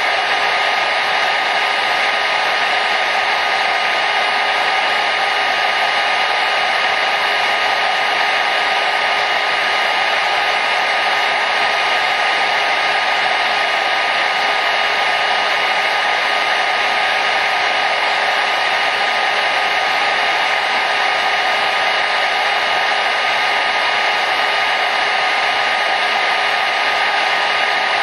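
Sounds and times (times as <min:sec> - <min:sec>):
hair dryer running: 0:00.0 - 0:28.0.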